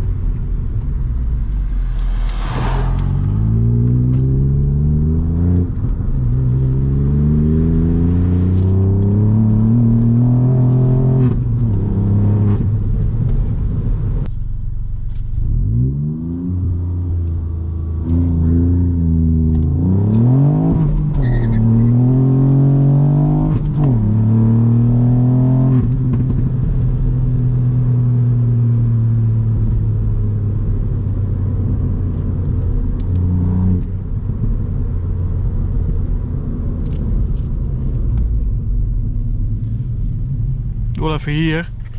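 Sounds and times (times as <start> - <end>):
exhaust crack: 0.0 - 6.6
car engine revving: 0.8 - 14.1, 15.4 - 38.2.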